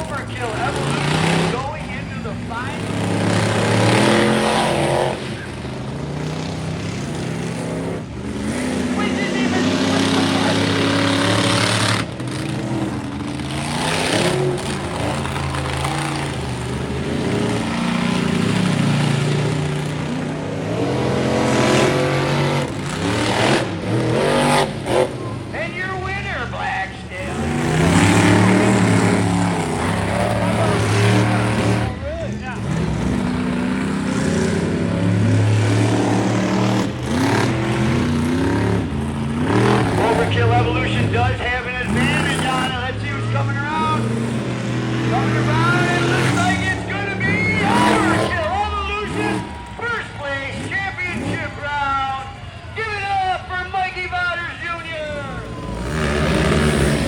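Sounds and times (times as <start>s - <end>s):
monster truck engines revving: 0.0s - 57.0s.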